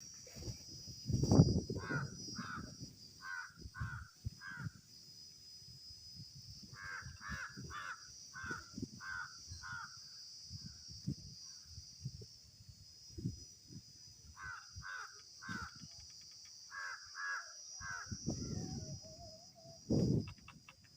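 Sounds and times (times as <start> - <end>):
steady high-pitched hiss: 0.0 - 20.9
crow cawing: 1.8 - 4.7, 6.8 - 10.0, 14.4 - 15.8, 16.7 - 18.2.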